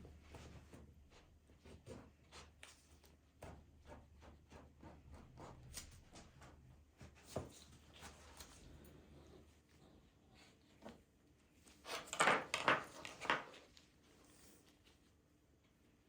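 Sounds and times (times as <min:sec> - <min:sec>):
faint rustling of handled objects: 0:05.6 - 0:16.0.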